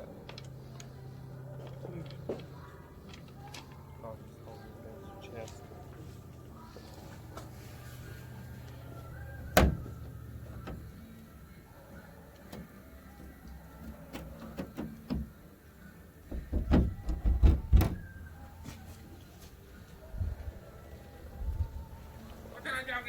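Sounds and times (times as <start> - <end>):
hand tools and metal parts knocking: 16.3 - 18.2.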